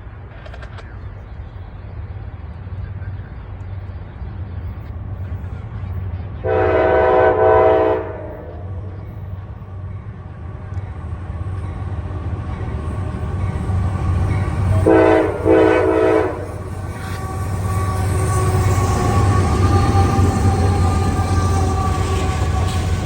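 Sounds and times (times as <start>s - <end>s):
low engine and rail rumble: 0.0s - 23.0s
locomotive air horn: 6.4s - 8.6s, 14.7s - 23.0s.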